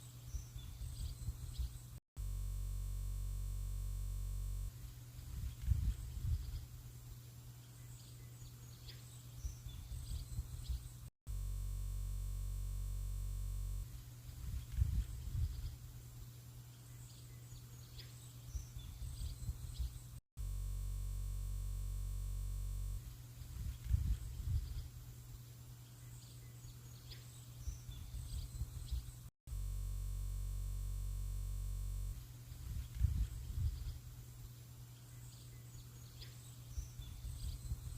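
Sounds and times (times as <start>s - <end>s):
flat electronic hum: 0.0s - 37.9s
birds chirping faintly: 4.7s - 11.1s, 13.8s - 20.2s, 23.0s - 29.3s, 32.2s - 37.9s.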